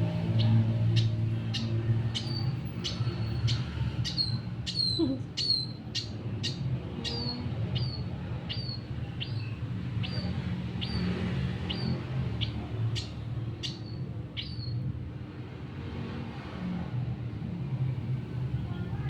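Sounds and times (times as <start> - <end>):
bird chirping: 0.1 - 14.8.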